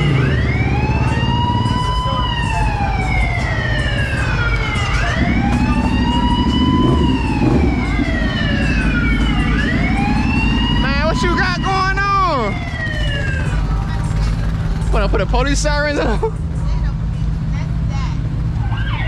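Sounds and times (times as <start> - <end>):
wailing siren: 0.0 - 14.0, 18.6 - 19.0
low engine rumble: 0.0 - 19.0.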